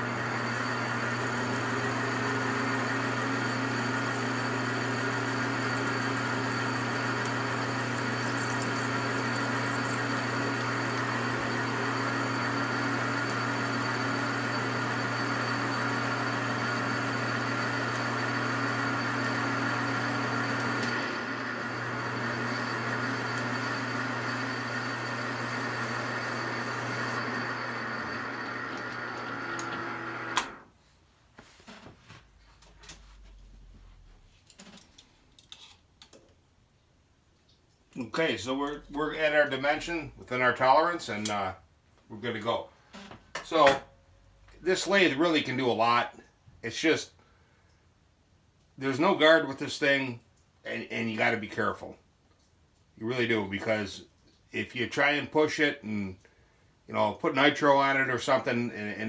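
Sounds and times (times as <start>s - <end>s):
lathe motor hum: 0.0s - 30.7s.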